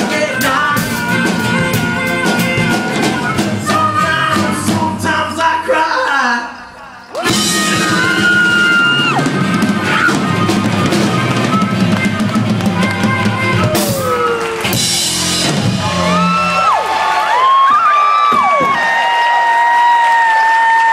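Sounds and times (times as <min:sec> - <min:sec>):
sliding bending guitar notes: 0:00.0 - 0:05.3, 0:07.2 - 0:16.5
live rock band playing: 0:00.0 - 0:06.1, 0:07.2 - 0:17.3.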